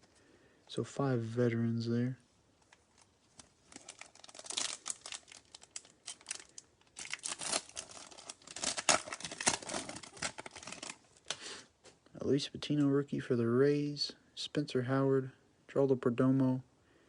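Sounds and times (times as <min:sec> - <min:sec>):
foil wrapper tearing and crinkling: 0:03.0 - 0:11.0.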